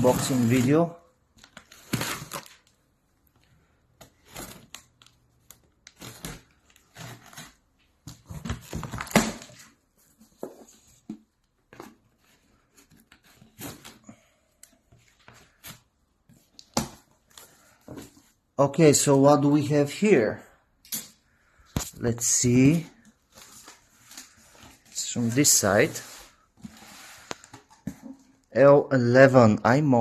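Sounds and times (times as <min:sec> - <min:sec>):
cardboard box rustling and scraping: 0:25.8 - 0:27.5.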